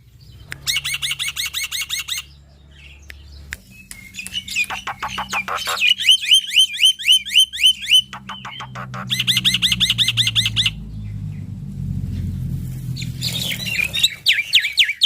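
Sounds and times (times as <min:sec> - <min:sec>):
bird singing whistled notes: 0:03.0 - 0:10.8, 0:13.2 - 0:15.0
bird harsh clicks: 0:03.1 - 0:06.4, 0:07.6 - 0:10.4.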